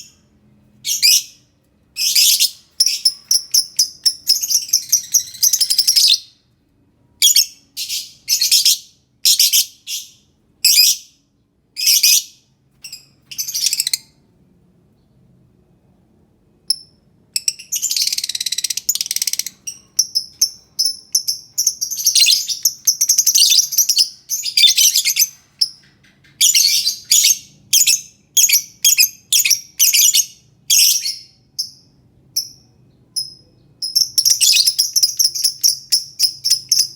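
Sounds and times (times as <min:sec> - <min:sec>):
lovebird shrill chirps: 0:02.0 - 0:06.3, 0:11.8 - 0:14.1, 0:16.7 - 0:25.8, 0:26.4 - 0:36.9.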